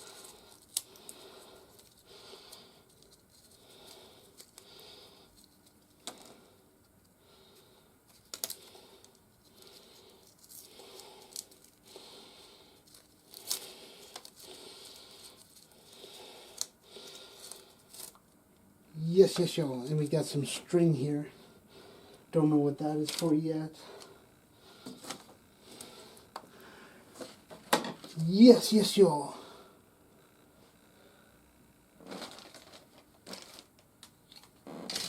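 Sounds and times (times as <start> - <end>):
plastic packaging crinkling: 32.0 - 35.0.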